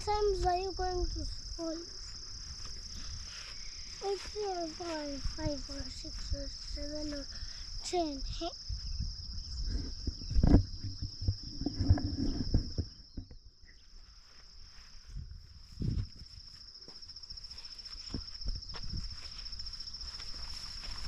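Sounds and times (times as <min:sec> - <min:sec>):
insects trilling: 0:00.0 - 0:21.0
footsteps on a path: 0:02.0 - 0:07.4, 0:14.1 - 0:21.0.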